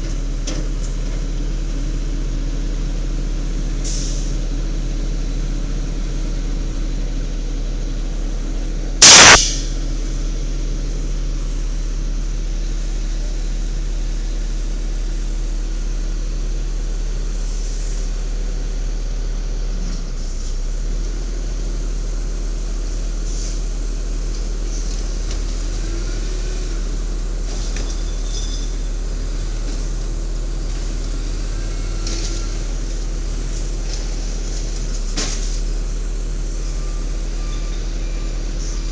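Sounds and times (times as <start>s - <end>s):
garbage truck engine running: 0.0s - 38.9s
air-brake hiss: 3.8s - 4.4s, 9.0s - 9.8s, 23.3s - 23.7s.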